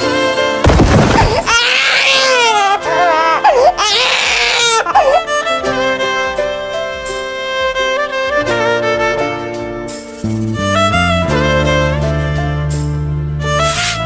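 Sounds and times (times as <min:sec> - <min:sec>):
background music: 0:00.0 - 0:14.0
thud: 0:00.6 - 0:01.5
wavering crying wail: 0:01.4 - 0:05.8.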